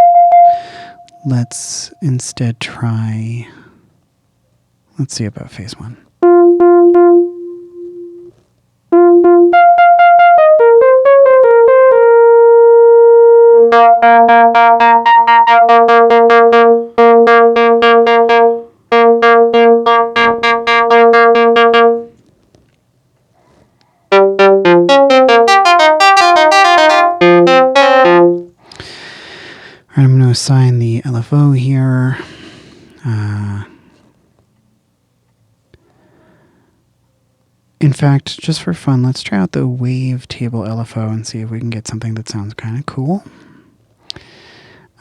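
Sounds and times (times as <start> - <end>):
pulsing synthesizer notes: 6.2 - 8.3, 8.9 - 22.1, 24.1 - 28.5.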